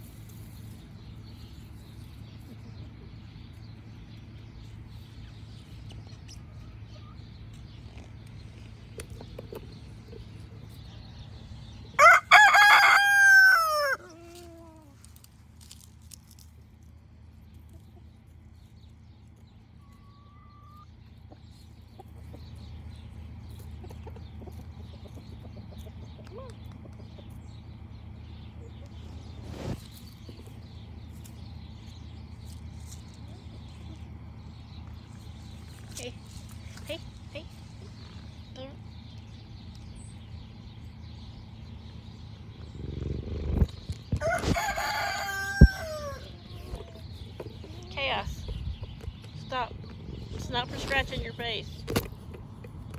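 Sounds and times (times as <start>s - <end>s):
chickens clucking: 5.1s - 15.1s, 17.4s - 41.0s, 41.6s - 52.9s
rooster crowing: 12.0s - 14.2s, 44.2s - 46.5s
low rumble: 27.4s - 52.9s
cat purring: 42.6s - 43.9s, 49.4s - 51.2s.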